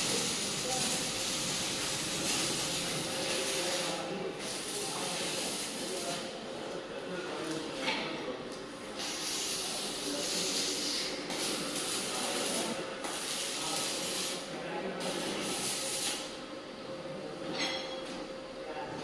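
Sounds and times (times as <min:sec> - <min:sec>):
welding arc sizzling: 0:00.0 - 0:06.4, 0:08.9 - 0:16.4.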